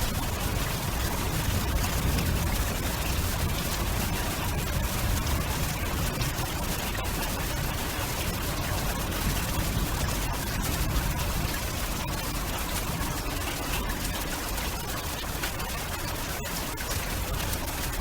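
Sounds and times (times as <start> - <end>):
fine crackle: 12.1 - 18.0.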